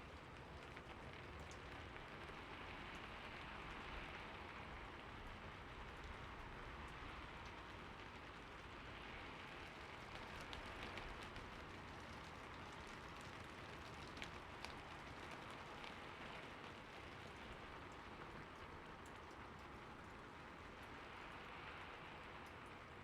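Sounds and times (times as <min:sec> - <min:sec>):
steady rain hiss: 0:00.0 - 0:23.0
raindrop taps: 0:09.6 - 0:19.8.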